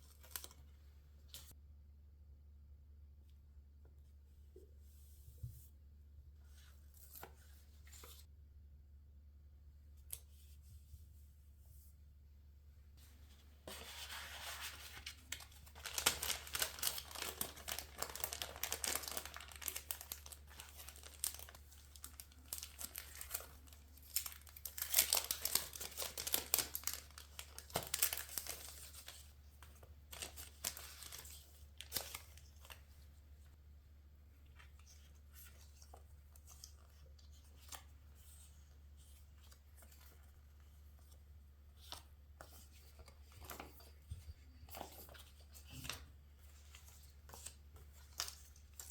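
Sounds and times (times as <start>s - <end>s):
paper tearing and crinkling: 13.7s - 29.2s.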